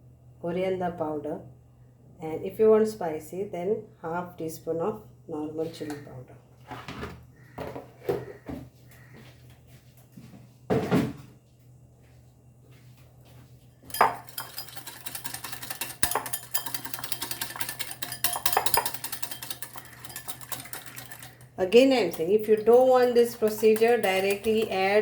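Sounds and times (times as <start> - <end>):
spoon stirring in a bowl: 13.8 - 25.0
spoon knocking on a bowl: 13.9 - 14.6, 16.0 - 21.2, 22.0 - 25.0.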